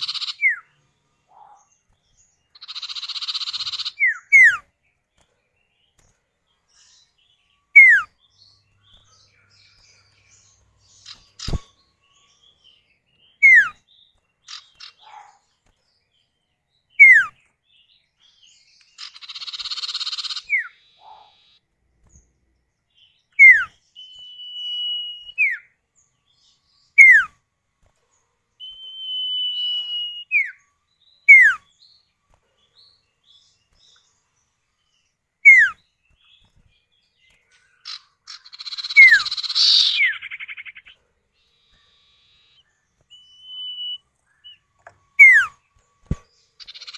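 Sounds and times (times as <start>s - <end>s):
bird harsh chattering: 0.0s - 0.6s, 2.6s - 4.6s, 10.9s - 11.8s, 18.9s - 21.6s, 35.4s - 35.8s, 37.8s - 42.6s, 45.2s - 45.6s, 46.6s - 46.9s
bird long level whistles: 7.7s - 8.1s, 13.4s - 13.8s, 23.3s - 25.7s, 26.9s - 27.4s, 28.6s - 30.6s, 31.2s - 31.7s, 35.4s - 35.8s, 38.3s - 40.9s, 41.5s - 46.9s
bird downward-sliding whistles: 23.4s - 25.7s, 28.6s - 30.6s, 41.9s - 44.6s, 45.2s - 46.2s.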